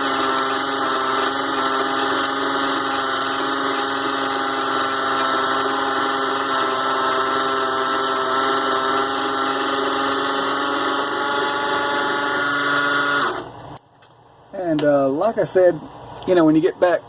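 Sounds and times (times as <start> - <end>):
lathe motor whining: 0.0 - 13.6.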